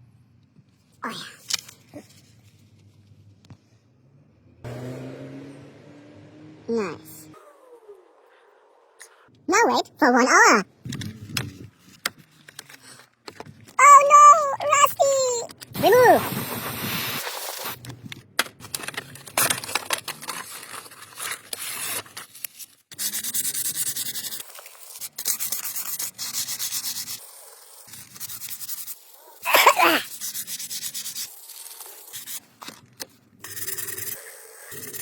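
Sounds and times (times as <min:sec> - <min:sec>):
sanding rust off metal: 0:22.9 - 0:32.4.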